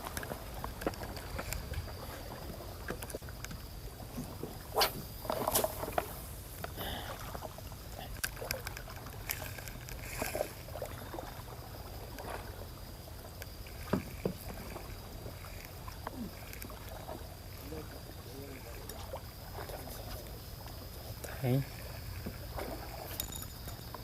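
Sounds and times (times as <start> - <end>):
faint trickling water: 5.3 - 24.0
fishing tackle clicking: 8.2 - 10.4.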